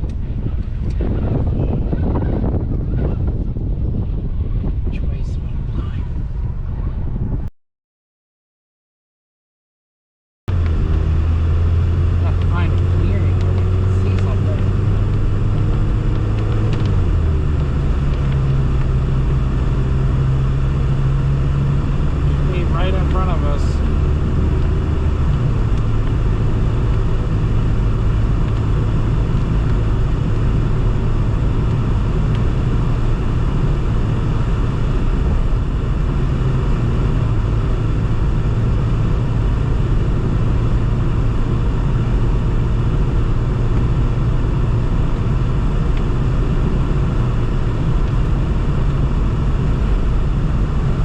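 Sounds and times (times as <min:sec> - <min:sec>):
car engine running: 0:10.5 - 0:51.0.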